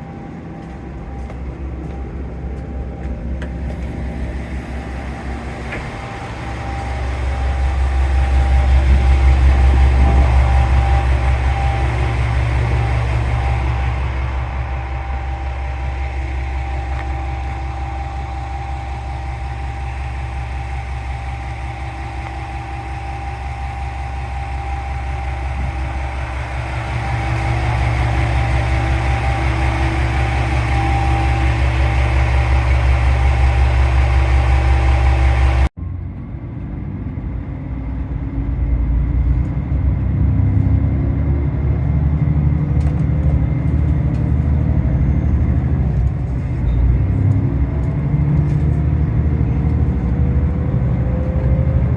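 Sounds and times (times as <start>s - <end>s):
thin whine: 0.0s - 35.8s
diesel railcar engine drone: 0.0s - 51.9s.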